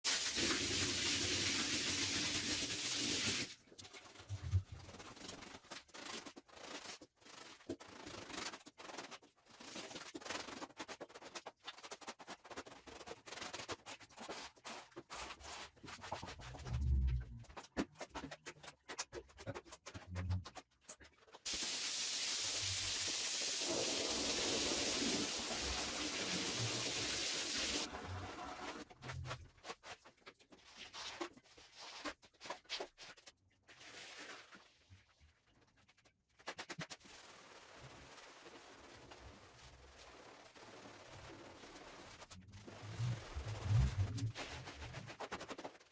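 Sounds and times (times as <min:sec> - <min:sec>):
cleaning equipment hiss: 0:21.5 - 0:27.9.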